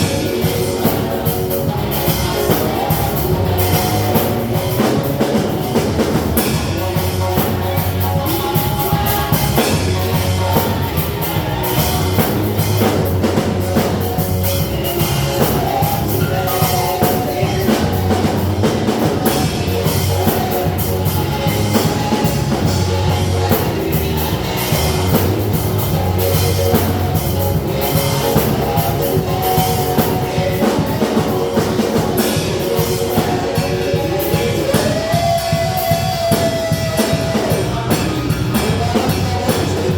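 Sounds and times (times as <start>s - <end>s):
drum kit beat: 0.0s - 39.9s
guitar and keyboard chords: 0.0s - 39.9s.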